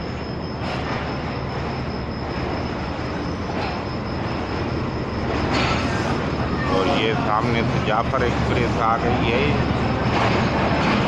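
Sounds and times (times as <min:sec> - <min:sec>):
passenger train running: 0:00.0 - 0:11.0.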